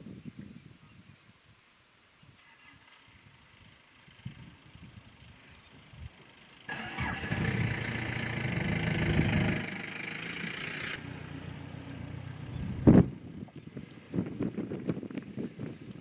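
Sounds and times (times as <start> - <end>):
engine running loudly: 6.7 - 13.2.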